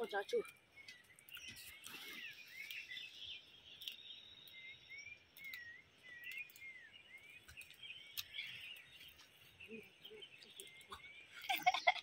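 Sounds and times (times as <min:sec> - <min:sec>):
birds chirping: 0:00.0 - 0:12.0
faint clicks: 0:05.3 - 0:06.7.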